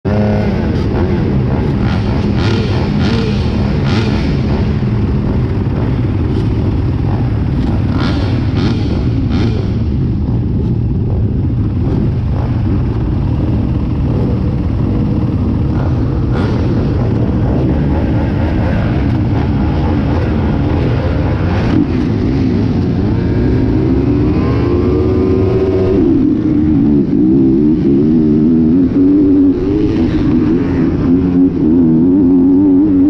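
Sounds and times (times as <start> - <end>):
engines revving up: 0.1 - 33.0
motocross bike engines: 0.1 - 33.0.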